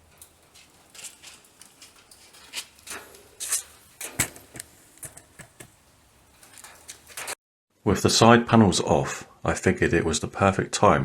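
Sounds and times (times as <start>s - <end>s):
tools and metal parts clicking: 6.4s - 7.4s.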